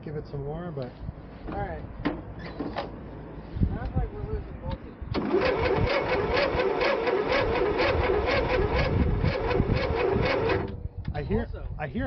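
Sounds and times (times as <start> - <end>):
electric starter cranking engine: 5.1 - 10.8.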